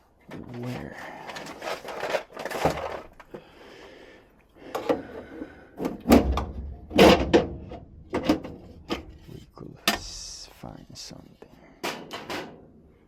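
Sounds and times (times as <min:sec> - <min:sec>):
sheet metal and tools clattering: 0:05.8 - 0:09.3
metal bangs: 0:06.0 - 0:09.3.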